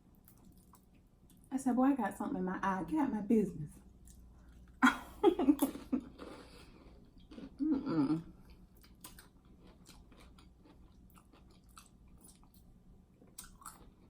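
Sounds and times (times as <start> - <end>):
close chewing and biting: 5.6 - 7.6, 8.5 - 14.0.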